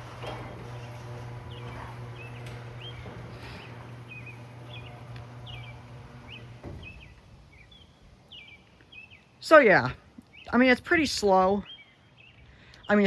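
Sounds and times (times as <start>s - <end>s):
garage door opener humming: 0.0s - 7.4s
birds chirping: 0.0s - 13.0s.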